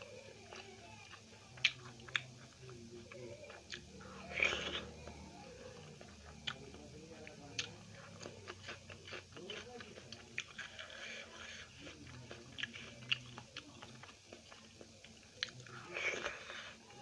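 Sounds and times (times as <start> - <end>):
close chewing with mouth clicks: 0.0 - 17.0.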